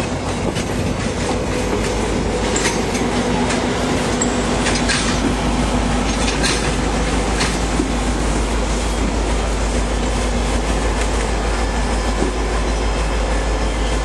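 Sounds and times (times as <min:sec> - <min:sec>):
train wheels clicking over joints: 0:00.0 - 0:13.6
train wheels squealing: 0:09.9 - 0:14.0.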